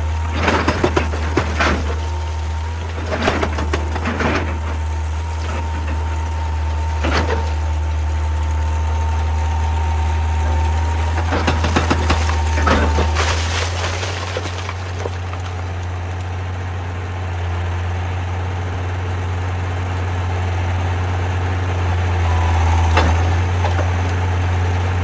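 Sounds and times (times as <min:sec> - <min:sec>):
excavator diesel engine running: 0:00.0 - 0:25.0
rock and steel clattering knocks: 0:00.3 - 0:02.2, 0:11.2 - 0:15.5.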